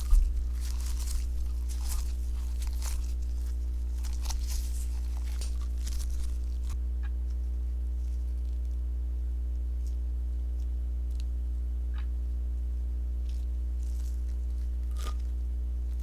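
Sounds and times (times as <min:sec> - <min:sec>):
slime crackling and popping: 0:00.0 - 0:06.8, 0:13.2 - 0:15.3
steady low hum: 0:00.0 - 0:16.0.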